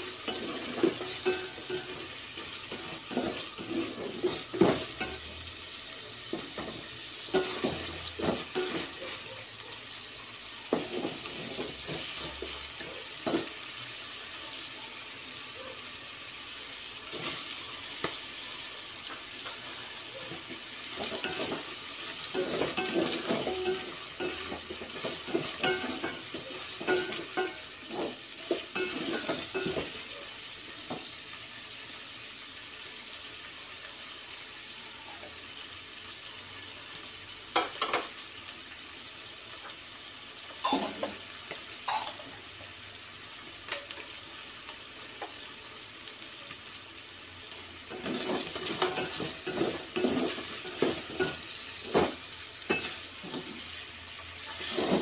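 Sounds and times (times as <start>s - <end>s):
spatula scraping a pot: 0.0s - 5.3s, 21.0s - 29.9s, 54.6s - 55.0s
food sizzling in a pot: 0.0s - 55.0s.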